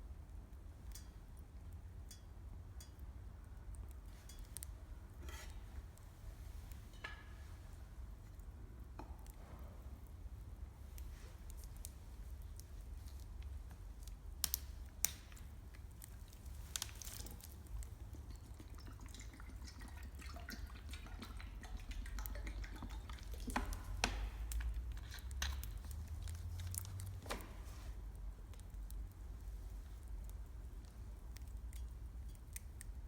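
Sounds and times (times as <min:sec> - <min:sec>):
campfire crackling and popping: 0:10.9 - 0:18.8, 0:22.0 - 0:33.0
water bubbling in a tin: 0:17.7 - 0:25.5.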